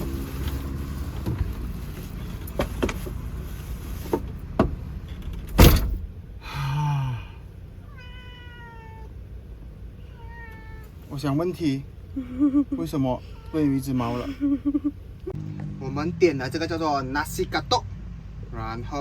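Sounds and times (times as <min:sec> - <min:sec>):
loud thump: 0:05.5 - 0:06.2
cat meowing: 0:07.8 - 0:09.2, 0:09.9 - 0:11.1, 0:13.2 - 0:14.2.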